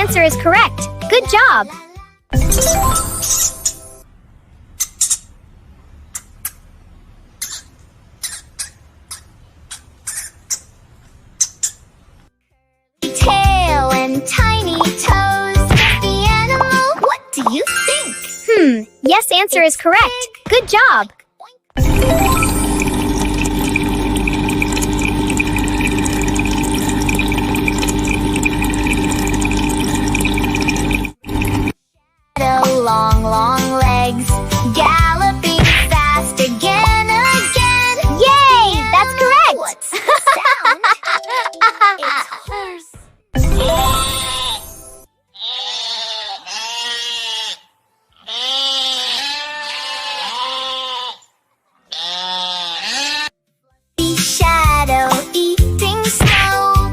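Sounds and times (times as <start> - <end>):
low hum: 21.8 - 31.7
water rushing: 21.9 - 31.7
recorded animal call: 45.3 - 53.4.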